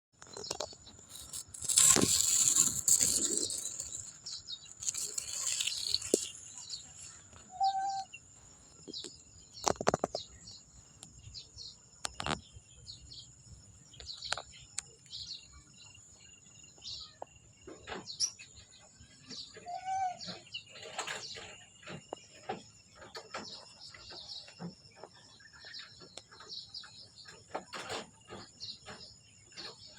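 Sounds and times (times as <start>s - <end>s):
high-pitched insect-like hum: 0.3s - 8.2s.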